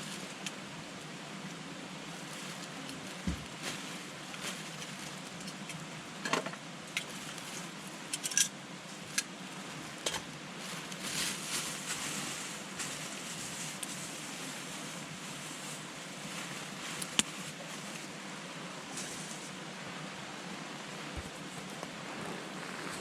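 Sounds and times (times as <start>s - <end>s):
campfire crackling and popping: 17.0s - 17.4s.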